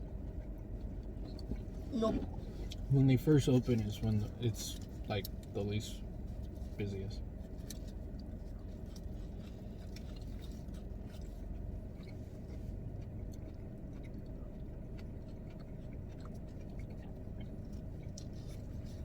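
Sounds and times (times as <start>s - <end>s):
chewing and biting food: 0.0s - 19.0s
steady low rumble: 0.0s - 19.0s.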